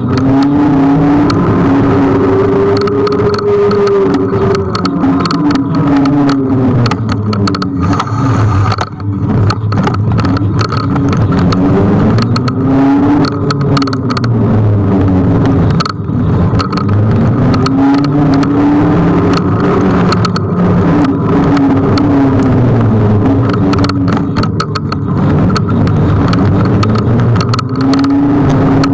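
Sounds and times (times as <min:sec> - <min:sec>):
electric scooter motor whine: 0:07.5 - 0:09.2
steady hum: 0:07.8 - 0:09.3.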